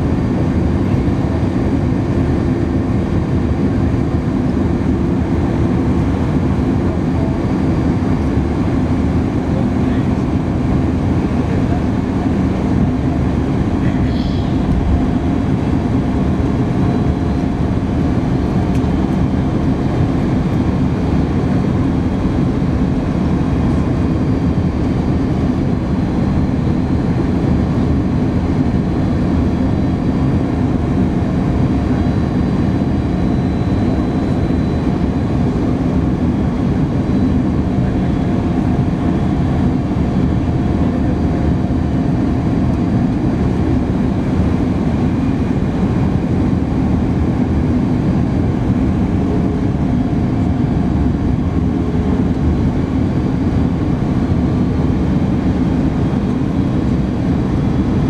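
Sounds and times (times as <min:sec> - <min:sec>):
jet engines and airflow rush: 0:00.0 - 0:58.0.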